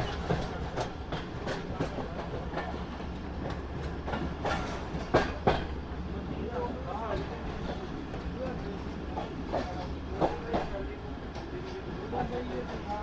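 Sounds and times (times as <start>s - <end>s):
wheel clacks over rail joints: 0.0s - 5.8s
train rumbling along track: 0.0s - 13.0s.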